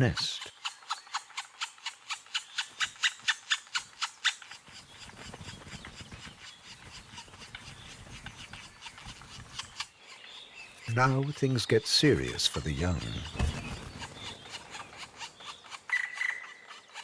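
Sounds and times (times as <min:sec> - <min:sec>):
woodpecker chicks calling: 0:00.0 - 0:17.0
soft scratchy rustling: 0:02.8 - 0:09.9.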